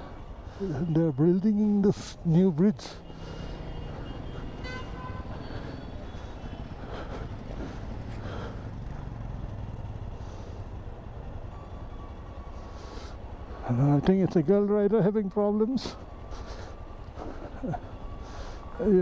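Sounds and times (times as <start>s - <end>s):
vehicle engines running: 0.0s - 19.0s
car horn honking: 3.4s - 5.6s.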